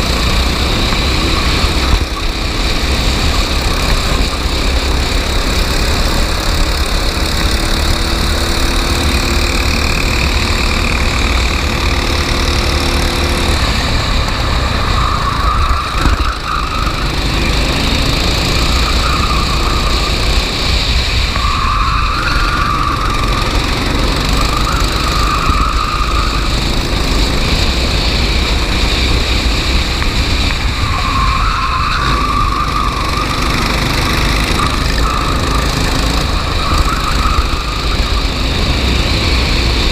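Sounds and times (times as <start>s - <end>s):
kart engine running hard: 0.0s - 39.9s
tyres squealing: 30.7s - 38.5s.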